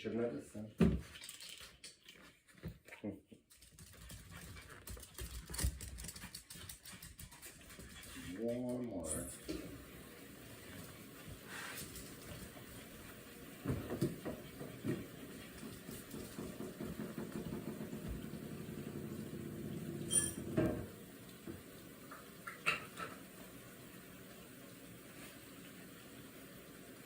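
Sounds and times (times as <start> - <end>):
dishes knocking and clattering: 13.6 - 23.3.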